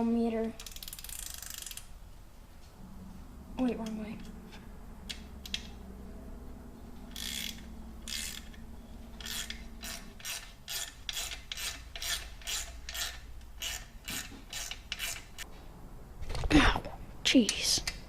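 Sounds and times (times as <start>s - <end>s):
socket ratchet clicking: 0.6s - 1.9s, 7.1s - 8.6s, 9.2s - 15.4s.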